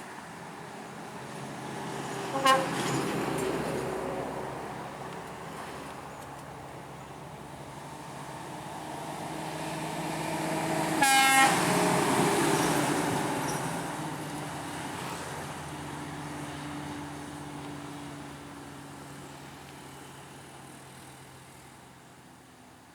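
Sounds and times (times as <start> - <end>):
truck engine and road noise: 0.0 - 22.9
truck horn toot: 2.3 - 2.8, 11.0 - 11.7.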